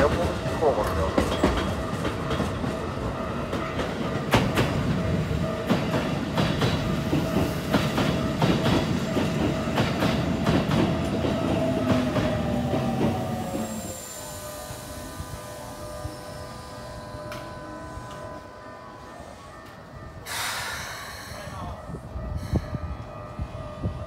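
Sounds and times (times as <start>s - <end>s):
train wheels clicking over rail joints: 0.0s - 14.0s
electric train whine: 0.0s - 24.0s.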